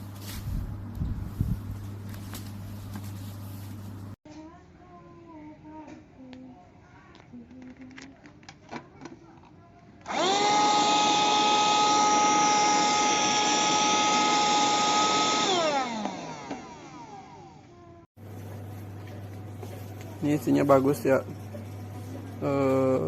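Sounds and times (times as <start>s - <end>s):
handheld vacuum cleaner whining: 10.0s - 17.7s.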